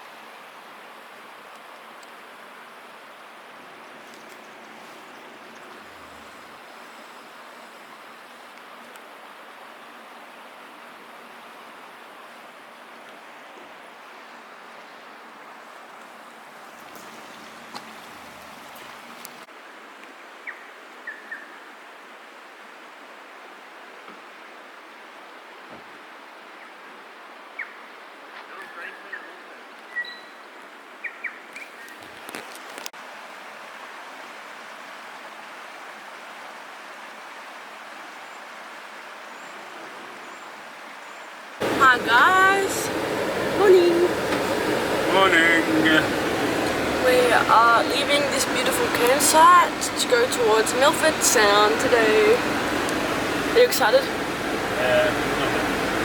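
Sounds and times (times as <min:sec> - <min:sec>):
creek rushing: 0:00.0 - 0:19.9, 0:32.2 - 0:56.0.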